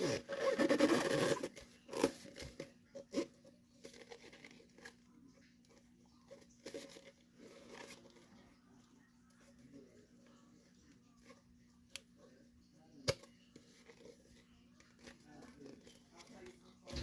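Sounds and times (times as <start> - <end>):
paper crinkling and rustling: 13.3 - 17.0.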